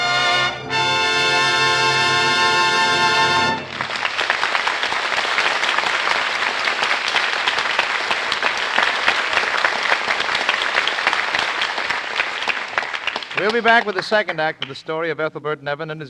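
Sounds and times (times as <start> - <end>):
orchestra closing chord: 0.0 - 3.9
audience applauding: 3.2 - 14.9.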